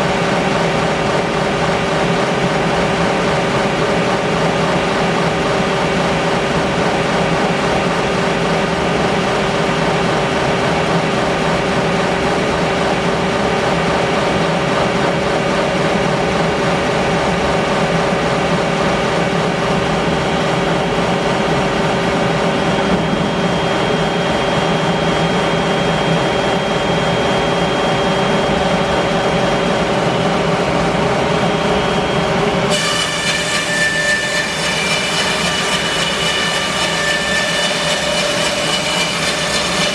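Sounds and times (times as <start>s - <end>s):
machine hum: 0.0s - 39.9s
bandsaw mill sawing wood: 32.7s - 39.9s.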